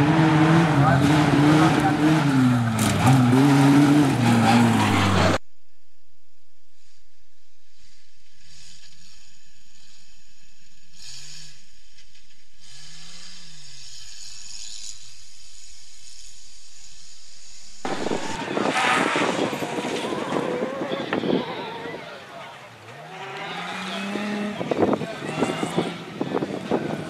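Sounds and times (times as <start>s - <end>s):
loud rally car engine: 0.0s - 5.4s, 22.1s - 27.0s
muffled rally car engine revving: 0.0s - 5.4s, 23.0s - 27.0s.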